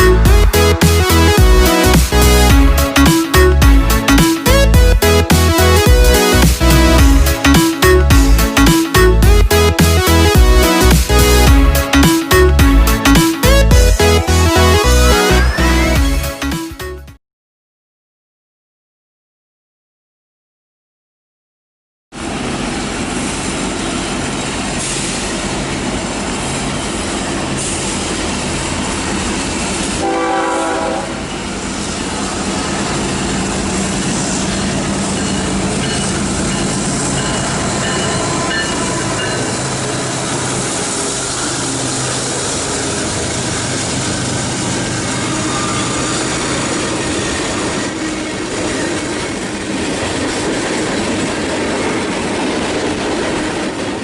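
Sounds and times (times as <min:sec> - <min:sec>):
locomotive horn: 0:30.0 - 0:31.4, 0:44.8 - 0:48.8
train wheels clacking on rails: 0:31.3 - 0:54.0.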